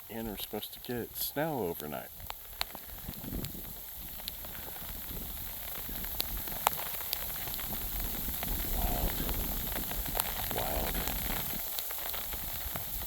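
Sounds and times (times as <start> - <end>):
ice pellets ticking: 0.0 - 13.0
sleet falling hiss: 4.3 - 13.0.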